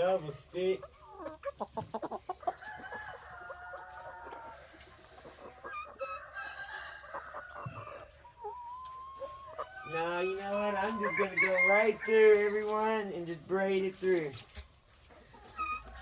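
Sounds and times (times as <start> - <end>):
chickens clucking: 0.0 - 16.0
roosters crowing: 2.3 - 4.8, 5.8 - 8.3, 8.9 - 13.0.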